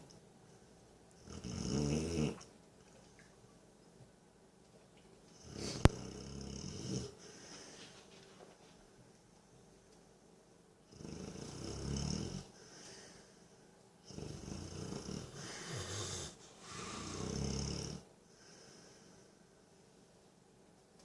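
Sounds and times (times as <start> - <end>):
dog snoring: 1.2 - 2.5, 5.4 - 7.2, 10.9 - 12.6, 14.0 - 18.1
dog breathing: 15.2 - 17.6.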